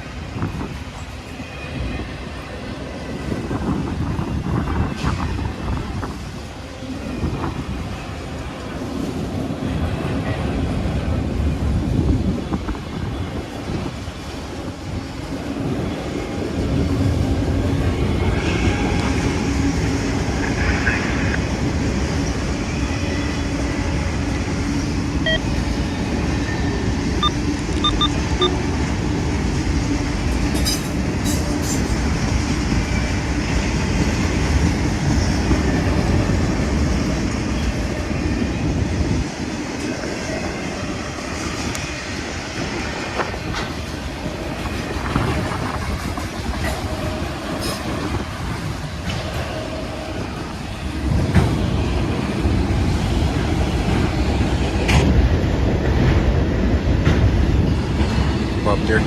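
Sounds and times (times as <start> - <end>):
freight train rumbling on rails: 0.0 - 59.0.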